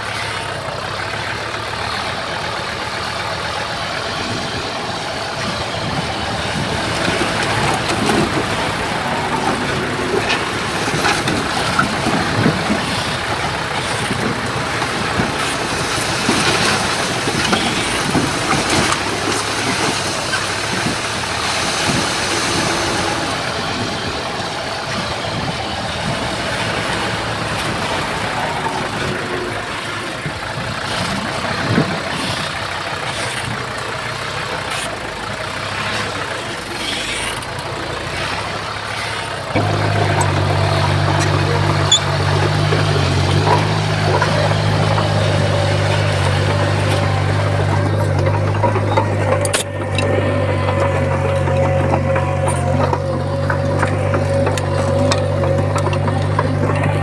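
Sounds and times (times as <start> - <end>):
heavy diesel machinery running: 0.0 - 57.0
metal knocks and clanks: 39.6 - 57.0.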